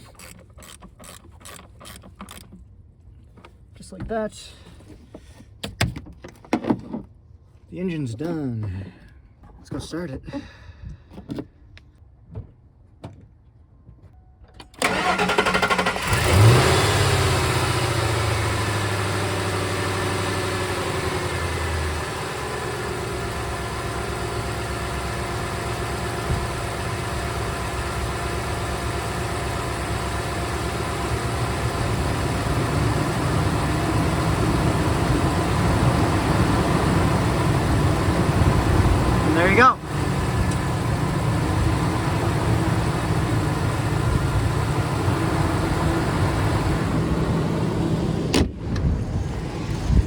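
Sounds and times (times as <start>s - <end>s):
engine cranking and starting: 14.7s - 47.1s
engine idling: 14.8s - 48.3s.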